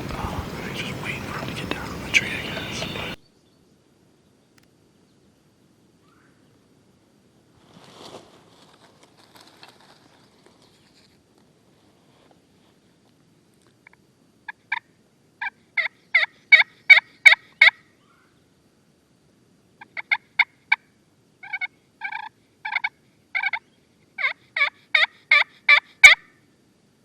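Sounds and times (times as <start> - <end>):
turkey yelping: 0.0 - 3.2, 21.4 - 23.6, 24.2 - 26.3.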